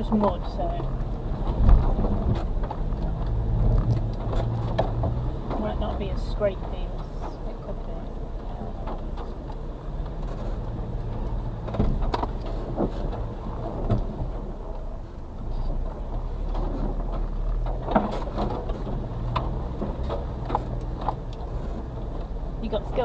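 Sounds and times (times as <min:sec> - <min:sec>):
knocks and rattles: 0:00.0 - 0:14.9
truck engine running at low revs: 0:00.0 - 0:23.0.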